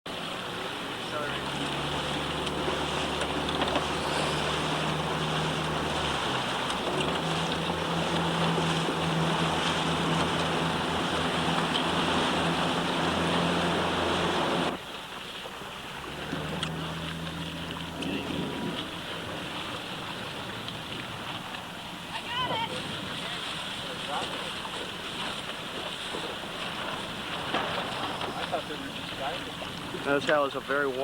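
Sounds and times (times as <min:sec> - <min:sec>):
boat engine running: 0:00.1 - 0:31.0
water rushing past hull: 0:00.1 - 0:31.0
wind on microphone: 0:17.9 - 0:23.7.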